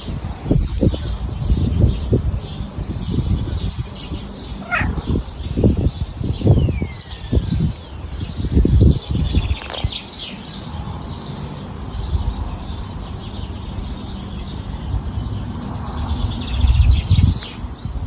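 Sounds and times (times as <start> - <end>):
small birds chirping: 0.0 - 18.0
low rumble: 1.2 - 6.9.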